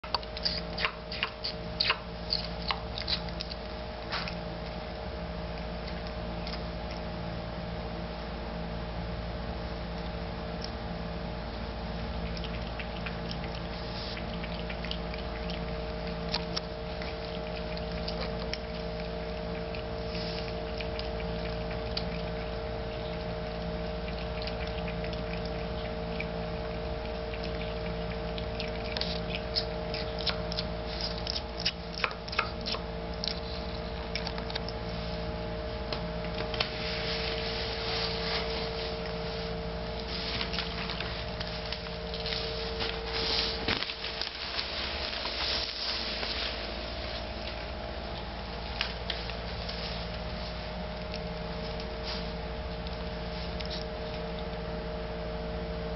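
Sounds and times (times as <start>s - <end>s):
steady hum: 0.0s - 55.9s
cat lapping water: 11.9s - 34.9s.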